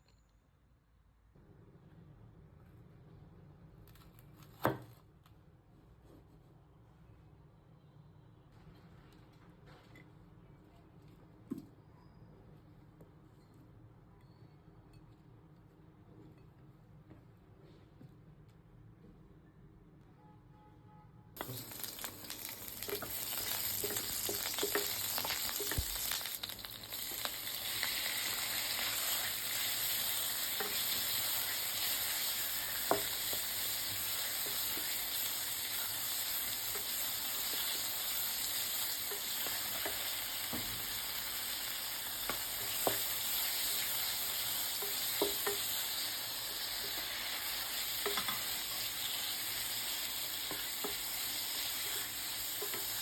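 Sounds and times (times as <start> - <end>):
food sizzling in oil: 21.4 - 53.0.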